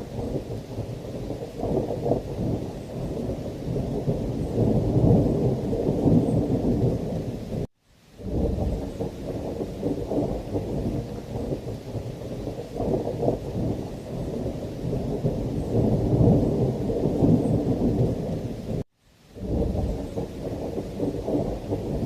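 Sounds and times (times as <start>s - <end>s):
thunder rumbling: 0.0s - 18.8s, 19.4s - 22.0s
rain: 0.0s - 22.0s.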